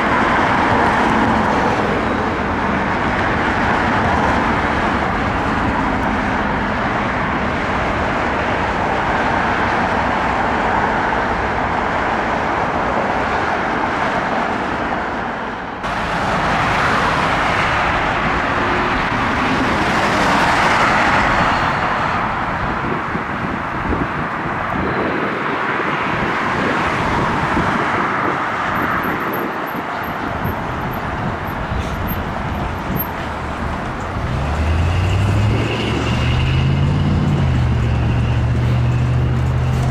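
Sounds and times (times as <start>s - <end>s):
passing road traffic: 0.0s - 39.9s
low engine note rising: 15.9s - 27.9s, 29.8s - 39.8s.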